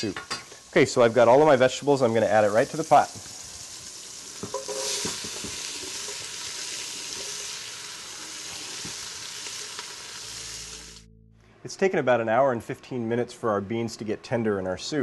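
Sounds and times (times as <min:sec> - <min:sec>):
vegetables sizzling in hot fat: 0:00.0 - 0:11.1.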